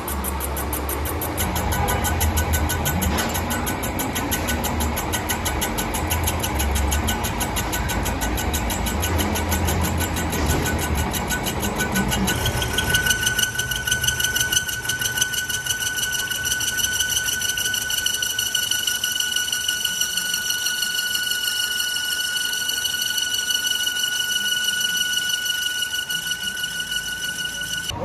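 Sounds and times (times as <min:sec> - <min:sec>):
steady high whine: 0:00.0 - 0:18.2
lathe humming and ticking: 0:00.0 - 0:28.0.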